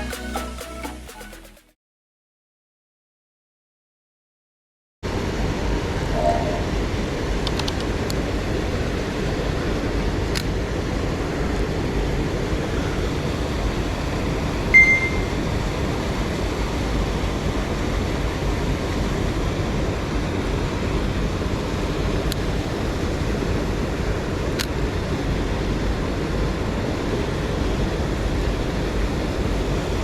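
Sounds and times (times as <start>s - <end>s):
short high-pitched tone: 6.2s - 6.7s, 14.7s - 15.4s.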